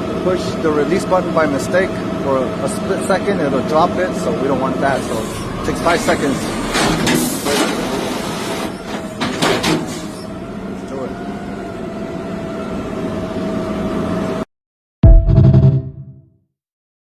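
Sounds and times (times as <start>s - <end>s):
garbage truck whine: 3.4s - 14.4s
loud music: 15.0s - 16.2s.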